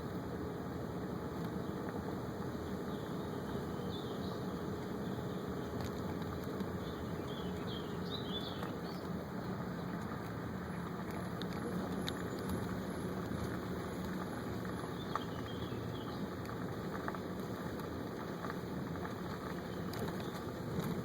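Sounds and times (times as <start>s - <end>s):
faint hum: 0.0s - 21.0s
small bird chirps: 6.8s - 9.1s.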